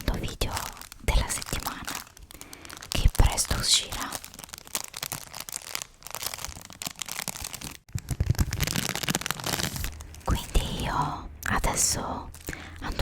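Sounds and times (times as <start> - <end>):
paper crumpling and rustling: 0.4 - 10.8.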